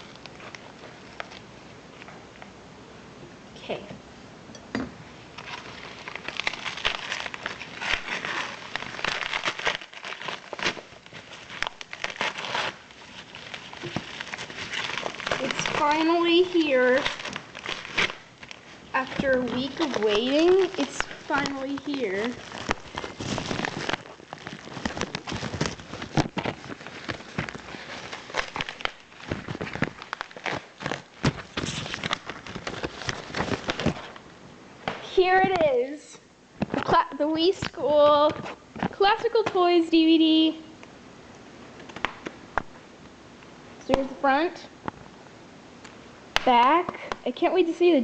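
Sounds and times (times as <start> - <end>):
packaging crinkling and rustling: 0.0 - 2.5, 5.3 - 35.8, 36.6 - 40.4.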